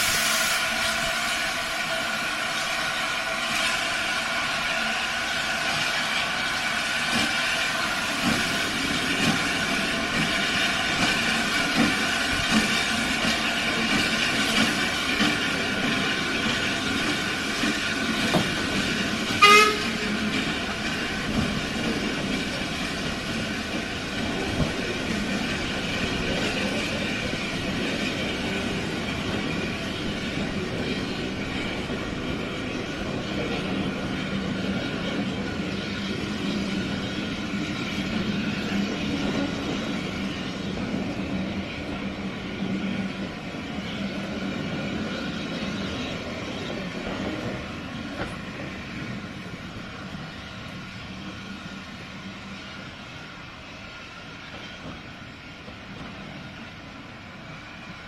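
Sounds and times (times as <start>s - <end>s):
train running: 0.0s - 58.0s
train horn toot: 19.3s - 20.3s.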